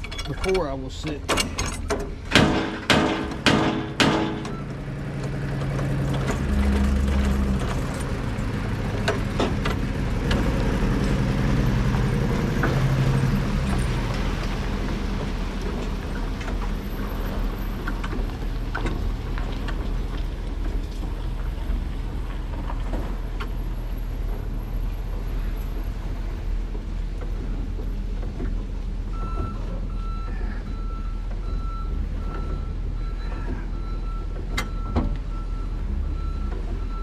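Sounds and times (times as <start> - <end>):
sharp knocks: 1.3 - 4.7
vehicle engine running: 2.3 - 29.2.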